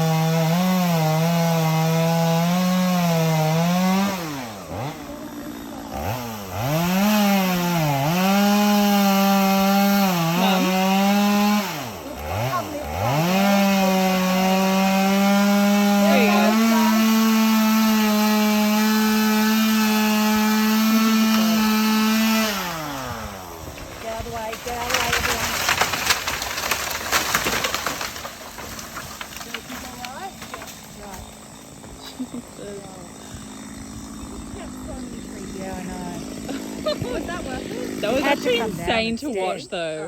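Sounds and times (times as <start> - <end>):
chainsaw cutting tree trunk: 0.0 - 39.6.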